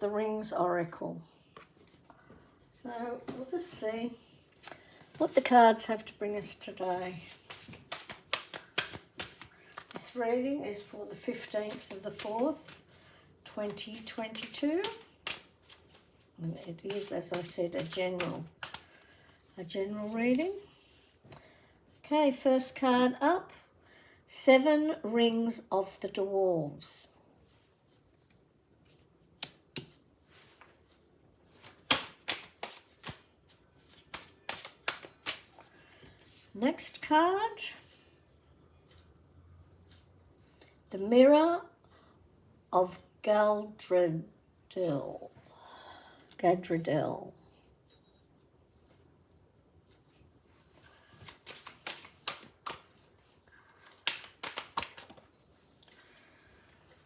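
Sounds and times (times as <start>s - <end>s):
playing cards snapping: 7.3s - 10.0s, 13.6s - 16.0s, 16.9s - 18.9s, 31.6s - 33.3s, 33.9s - 35.5s, 51.2s - 53.0s, 53.8s - 55.3s.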